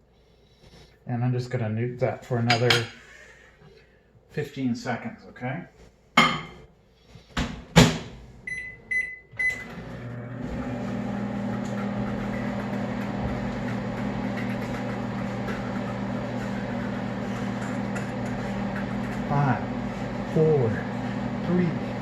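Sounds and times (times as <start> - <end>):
microwave oven humming: 8.5 - 22.0.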